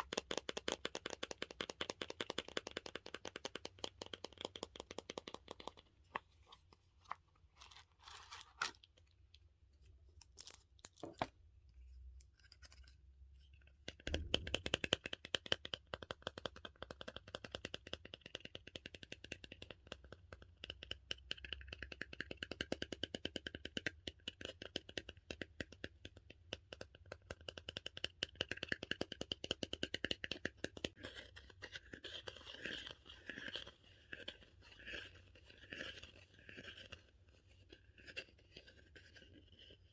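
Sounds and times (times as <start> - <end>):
taps on squishy toy: 13.9 - 30.9.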